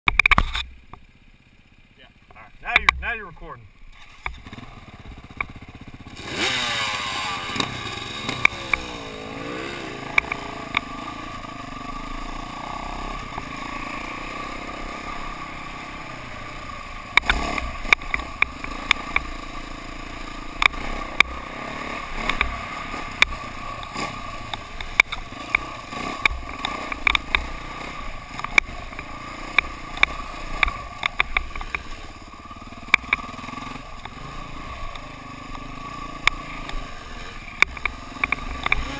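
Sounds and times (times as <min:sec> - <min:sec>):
sharp clicks and knocks: 0:00.1 - 0:01.1, 0:02.2 - 0:03.1, 0:10.1 - 0:10.9, 0:17.1 - 0:19.3, 0:20.6 - 0:21.4, 0:22.2 - 0:22.6, 0:24.5 - 0:27.5, 0:28.3 - 0:31.9, 0:32.9 - 0:33.3, 0:37.5 - 0:38.9
dirt bike engine revving: 0:00.3 - 0:38.9.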